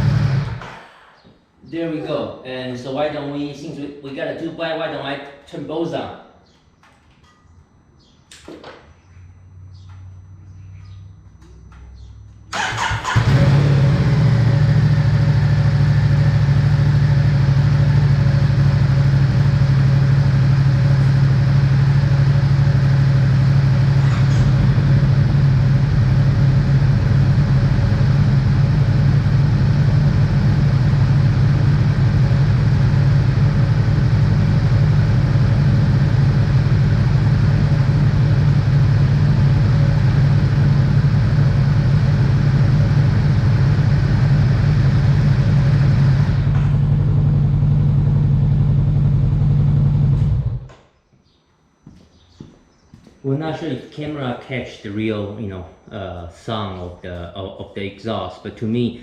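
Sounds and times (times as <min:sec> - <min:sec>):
motorcycle engines starting and idling: 0:00.0 - 0:01.3, 0:09.6 - 0:50.9.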